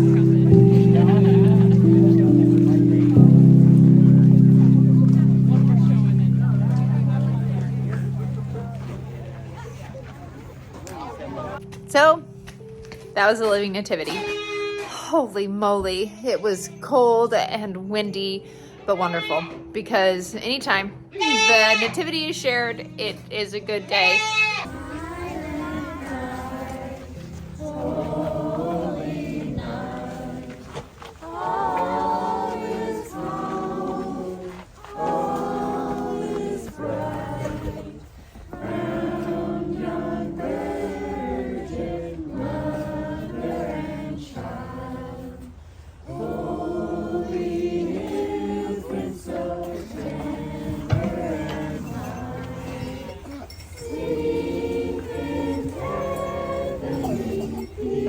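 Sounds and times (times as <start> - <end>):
choir singing: 0.0 - 11.7, 24.0 - 58.0.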